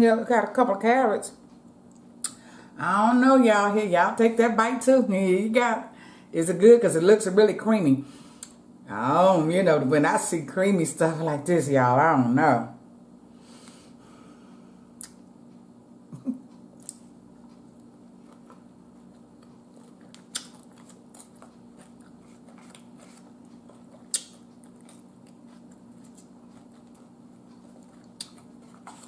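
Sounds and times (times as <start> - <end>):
person chewing: 16.5 - 29.0
mouth clicks and smacks: 23.9 - 25.1.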